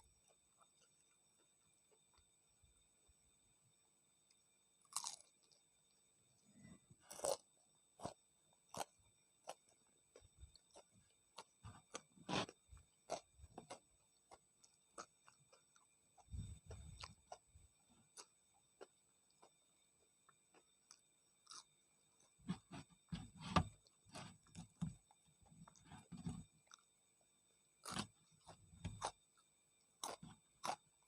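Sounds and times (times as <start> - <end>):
crunchy bites and chewing: 4.8 - 5.6, 7.0 - 19.6, 20.3 - 27.0, 27.8 - 31.0.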